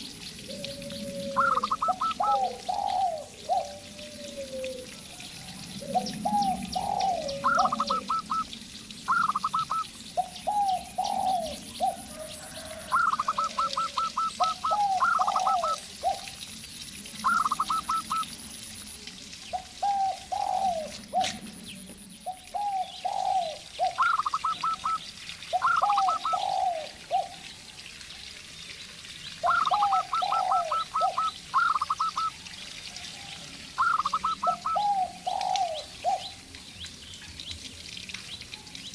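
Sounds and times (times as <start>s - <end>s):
doves cooing: 0.4s - 8.5s, 9.1s - 16.4s, 17.2s - 18.3s, 19.5s - 21.6s, 22.3s - 27.4s, 29.4s - 32.4s, 33.8s - 36.3s.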